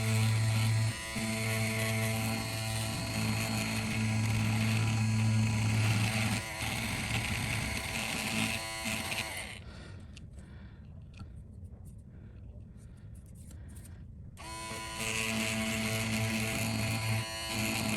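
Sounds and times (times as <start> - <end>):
electric tool motor humming: 0.0 - 9.6, 14.4 - 17.9.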